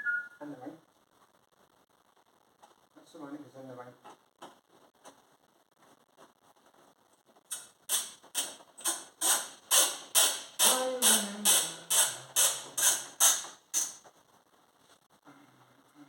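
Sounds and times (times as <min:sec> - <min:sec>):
ratchet wrench clicking: 0:07.9 - 0:13.9.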